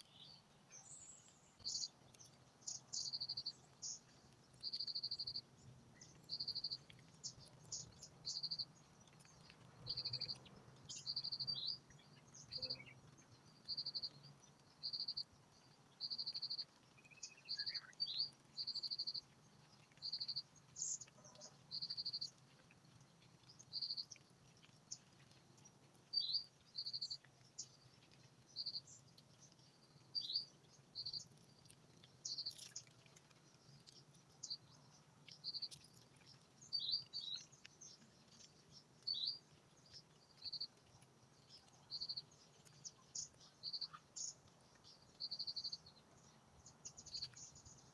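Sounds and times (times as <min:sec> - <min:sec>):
insect trilled chirps: 0:04.6 - 0:05.4, 0:32.2 - 0:32.9.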